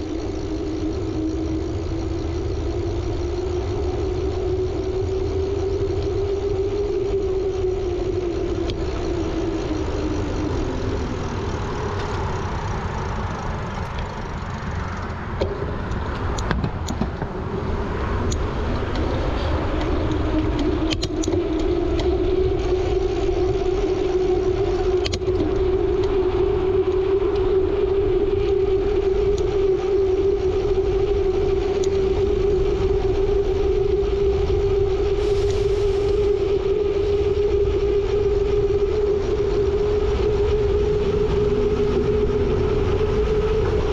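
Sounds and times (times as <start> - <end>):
road traffic hum: 0.0 - 43.9
wind rumble on microphone: 0.0 - 43.9
sharp clicks and rattles: 7.7 - 17.4, 18.2 - 22.2.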